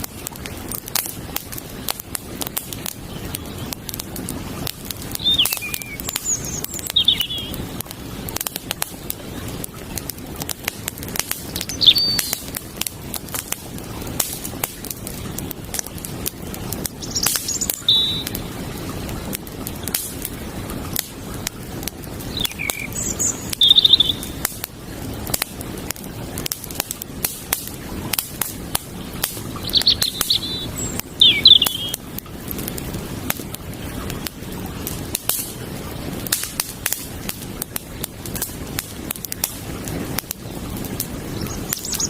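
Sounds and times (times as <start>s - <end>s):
campfire crackling and popping: 0.0s - 42.0s
creek water running: 0.0s - 42.0s
small bird chirping: 5.2s - 7.6s, 11.5s - 12.4s, 17.0s - 18.4s, 22.3s - 24.4s, 29.6s - 32.0s, 41.3s - 42.0s.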